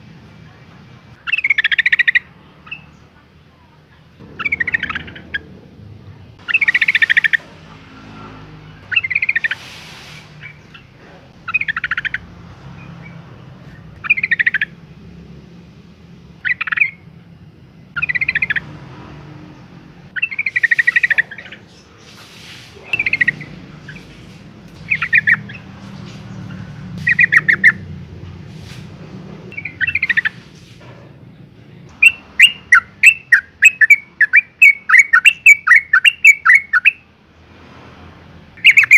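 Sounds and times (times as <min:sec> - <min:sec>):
bird chattering call: 0:01.2 - 0:03.0, 0:04.2 - 0:05.6, 0:06.4 - 0:07.6, 0:08.8 - 0:12.3, 0:14.0 - 0:14.8, 0:16.4 - 0:17.0, 0:18.0 - 0:18.7, 0:20.1 - 0:27.9, 0:29.5 - 0:30.5, 0:31.9 - 0:37.0, 0:38.6 - 0:38.9.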